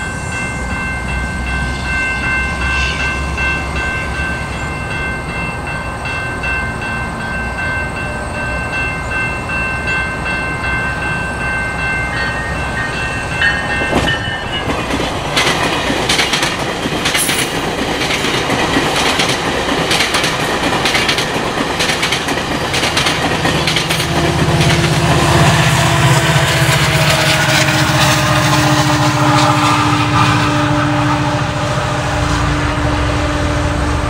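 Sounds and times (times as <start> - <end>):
train wheels clicking over rail joints: 12.1 - 25.6.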